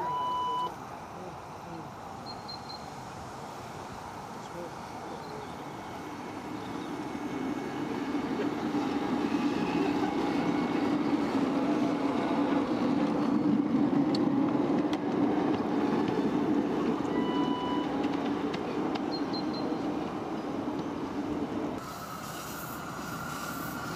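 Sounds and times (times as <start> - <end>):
train wheels rumbling on rails: 5.0 - 23.9.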